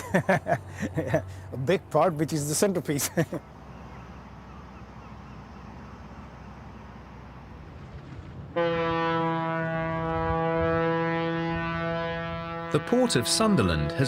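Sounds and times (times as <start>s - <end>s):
ship's horn blast: 8.5s - 14.0s.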